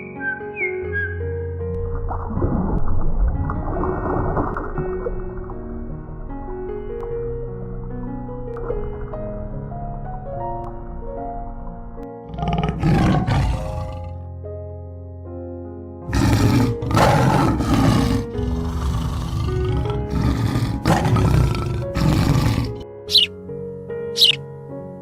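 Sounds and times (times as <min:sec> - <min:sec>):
soft piano music: 0:00.0 - 0:25.0
large animal roaring: 0:12.3 - 0:14.2, 0:16.1 - 0:22.8.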